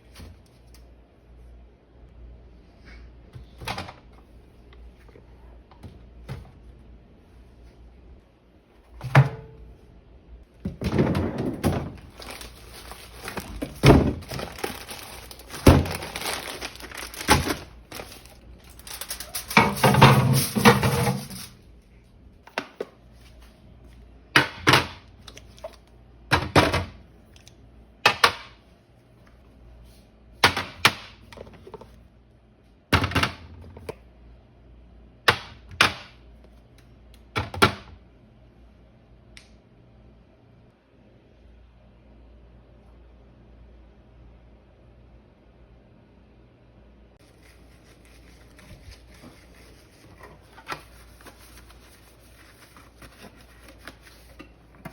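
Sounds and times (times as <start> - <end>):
food containers clattering: 10.6 - 21.6.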